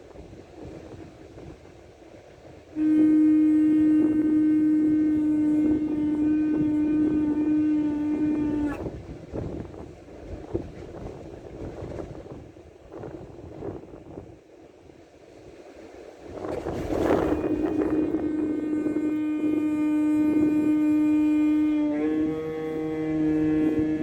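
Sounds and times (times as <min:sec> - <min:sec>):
wind on microphone: 0:00.0 - 0:24.0
shofar blast: 0:02.8 - 0:08.9, 0:16.8 - 0:24.0.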